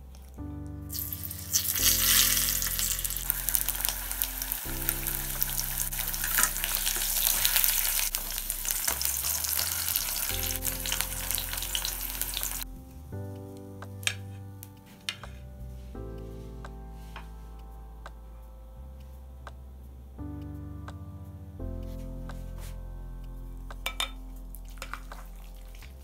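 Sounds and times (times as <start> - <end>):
potatoes sizzling in hot oil: 0.9 - 12.6.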